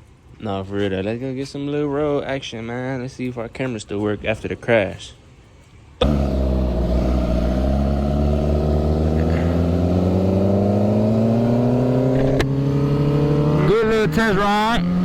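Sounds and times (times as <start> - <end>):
motorcycle engine accelerating: 6.0 - 15.0
sharp click: 12.1 - 12.5.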